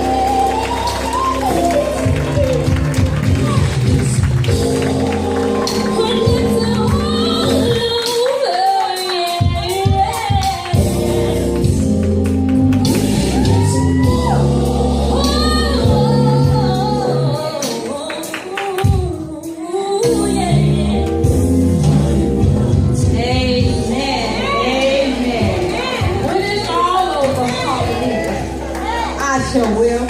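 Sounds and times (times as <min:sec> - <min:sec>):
instrumental bass line: 0:00.0 - 0:08.0, 0:10.8 - 0:17.4, 0:20.1 - 0:30.0
gospel choir singing: 0:13.0 - 0:17.4, 0:21.8 - 0:27.0.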